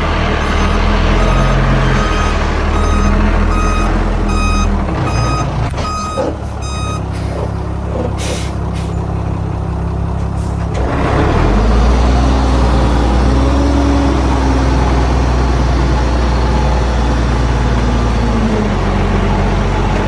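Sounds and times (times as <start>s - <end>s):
truck reversing alarm beeping: 0.0s - 9.0s
diesel engine running: 0.0s - 20.0s.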